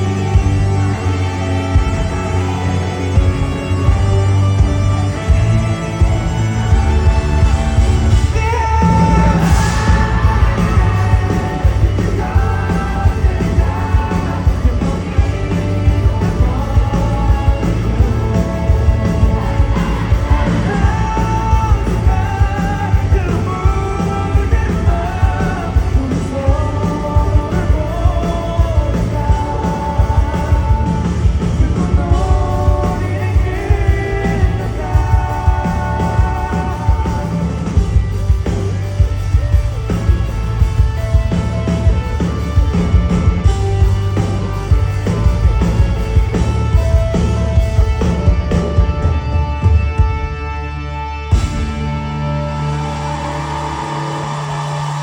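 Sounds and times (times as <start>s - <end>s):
bass guitar: 0.0s - 55.0s
drum kit: 0.0s - 55.0s
person singing: 8.2s - 38.7s.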